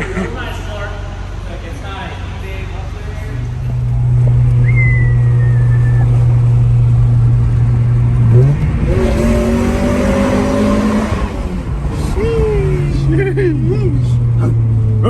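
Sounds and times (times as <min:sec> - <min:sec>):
car engine accelerating: 0:03.2 - 0:15.0.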